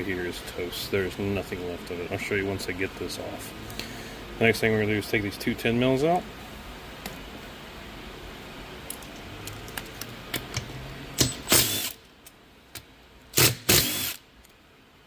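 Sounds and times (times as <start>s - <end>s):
ratchet wrench clicking: 11.2s - 12.0s.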